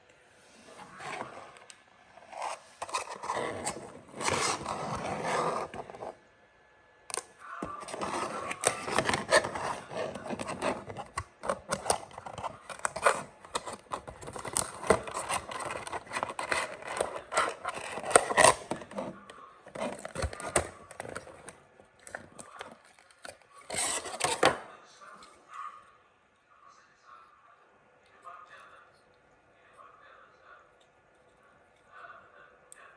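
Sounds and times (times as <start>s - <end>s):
toy car and packaging handling: 7.6s - 24.6s.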